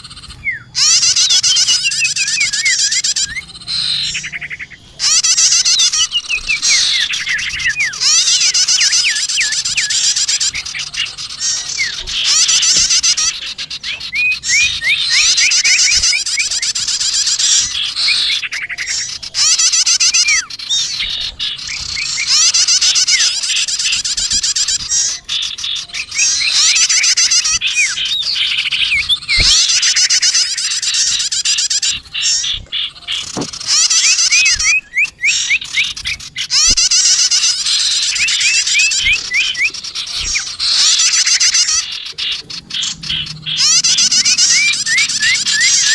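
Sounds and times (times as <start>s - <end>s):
songbirds chattering and chirping: 0.0s - 45.9s.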